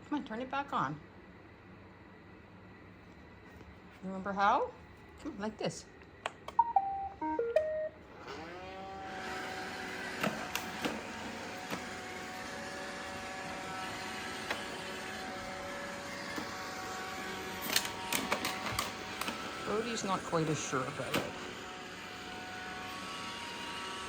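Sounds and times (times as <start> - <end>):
electronic beeps: 6.6 - 8.0
robot vacuum motor whine and hum: 7.6 - 24.0.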